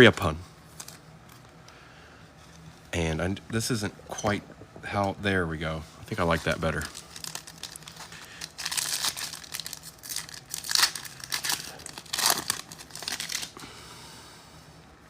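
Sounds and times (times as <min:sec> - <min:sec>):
foil pack tearing: 0:06.2 - 0:13.6
wrapper crinkling: 0:06.2 - 0:13.6.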